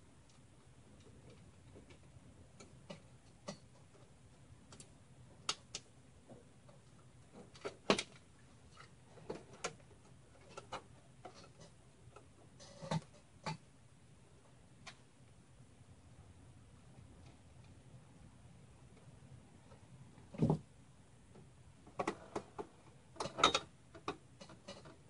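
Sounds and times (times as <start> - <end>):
hard drive clicks and knocks: 1.0 - 13.7, 21.3 - 25.0.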